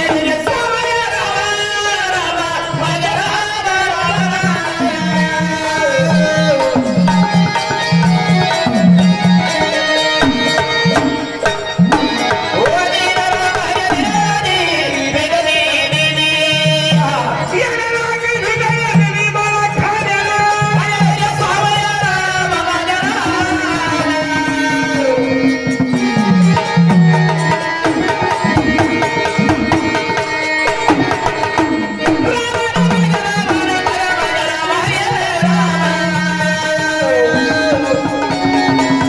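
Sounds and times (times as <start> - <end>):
person singing: 0.0 - 39.0
melodic instrumental accompaniment: 5.6 - 15.4.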